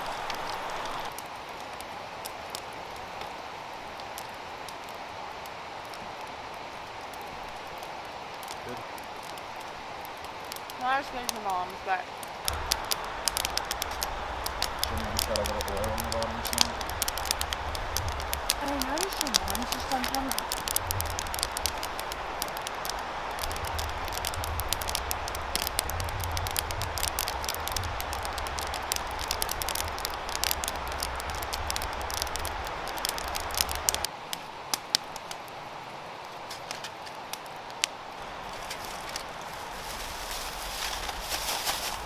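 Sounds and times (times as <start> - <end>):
campfire crackling and popping: 0.0 - 42.0
steady hiss: 0.0 - 42.0
low rumble: 12.5 - 34.1.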